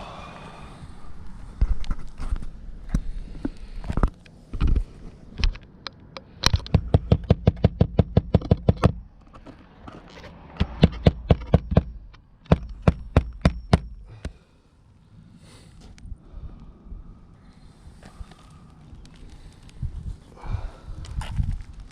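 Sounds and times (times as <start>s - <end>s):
hammer driving nails: 6.4s - 9.0s, 10.6s - 14.4s.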